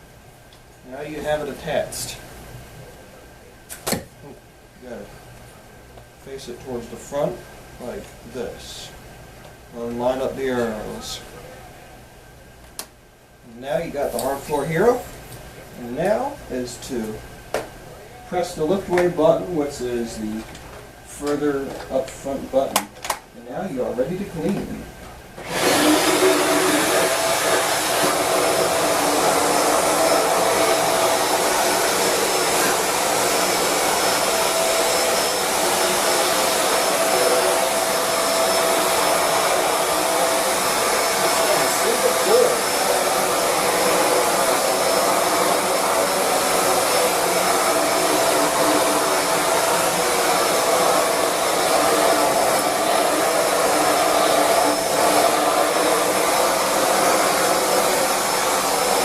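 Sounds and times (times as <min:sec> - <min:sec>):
vacuum cleaner running: 0:25.4 - 0:59.0.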